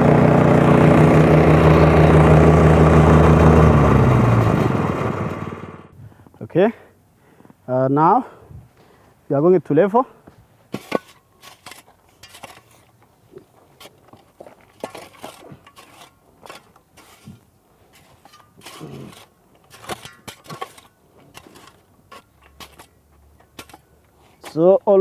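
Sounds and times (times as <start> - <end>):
hand tool scraping soil: 10.7 - 25.0.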